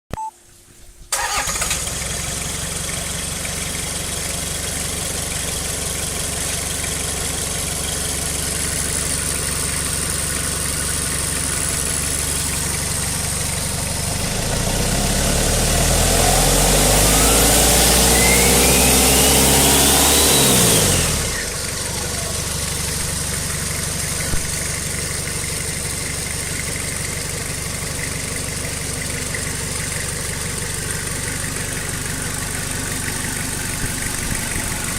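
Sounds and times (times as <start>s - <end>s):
diesel engine starting and idling: 1.1s - 34.9s
turbo whine: 8.5s - 24.7s.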